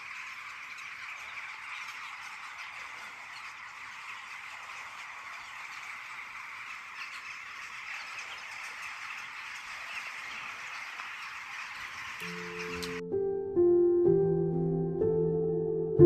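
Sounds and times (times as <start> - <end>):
birds chattering: 8.0 - 13.0
soft piano music: 12.2 - 16.0.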